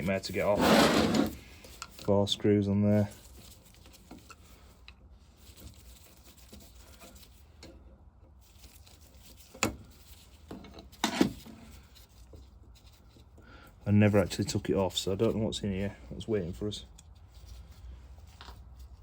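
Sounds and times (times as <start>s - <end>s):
tool and parts handling: 0.0s - 2.1s, 6.5s - 12.4s.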